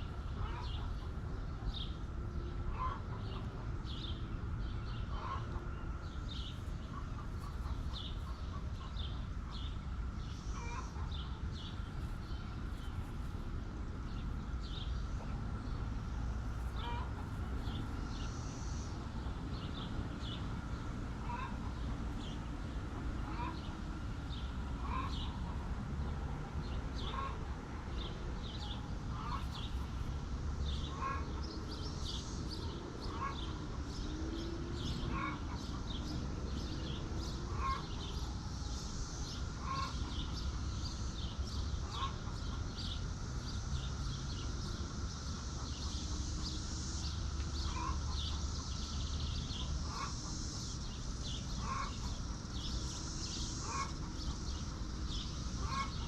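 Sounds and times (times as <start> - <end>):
steady low hum: 0.0 - 56.0
chickens clucking: 5.1 - 9.8, 47.2 - 48.8.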